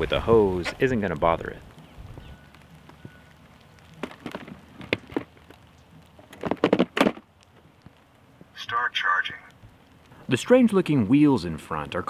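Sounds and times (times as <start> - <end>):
light rain falling: 0.0 - 12.0.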